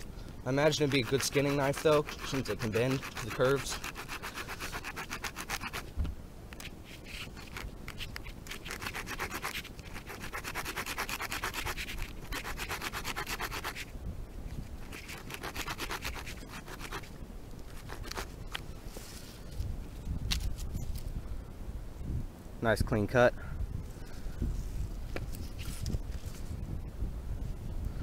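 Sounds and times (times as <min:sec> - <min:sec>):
knife sawing through wood: 0:00.5 - 0:05.9, 0:07.0 - 0:13.9, 0:14.8 - 0:17.1, 0:17.7 - 0:18.4.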